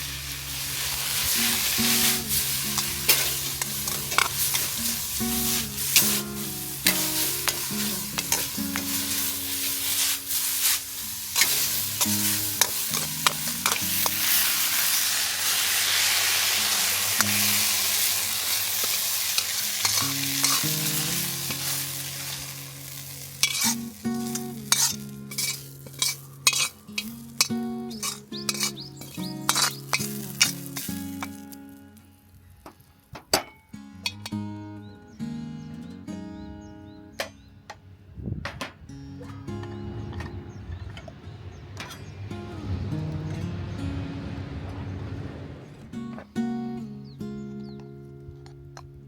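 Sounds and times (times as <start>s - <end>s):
metal spatula scraping wok: 0.0s - 31.5s
food sizzling in a wok: 0.0s - 32.6s
soft background music: 0.0s - 33.0s, 38.8s - 49.0s
metal clinks on wok: 24.7s - 30.1s.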